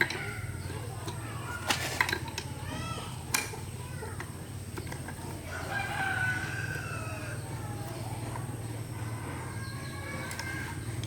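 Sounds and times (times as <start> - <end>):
rooster crowing: 5.4 - 7.6.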